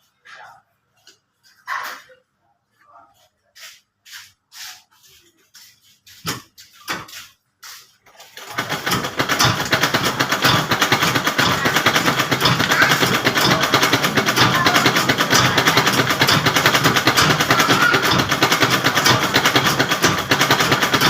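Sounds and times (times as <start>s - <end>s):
sewing machine clicks and knocks: 8.4s - 21.0s
sewing machine running: 8.4s - 21.0s.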